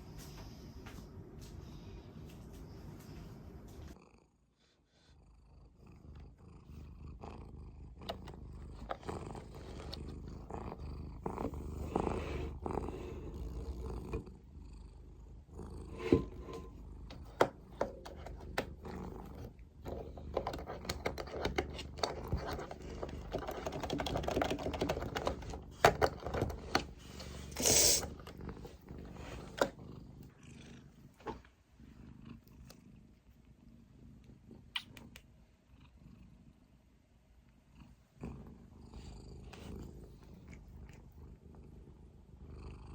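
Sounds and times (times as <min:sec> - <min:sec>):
cat purring: 0:03.7 - 0:42.9
small clicks and knocks: 0:17.1 - 0:27.0.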